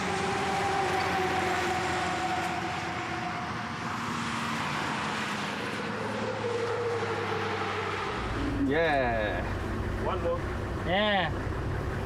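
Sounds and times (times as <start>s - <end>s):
engine whining: 5.7s - 12.0s.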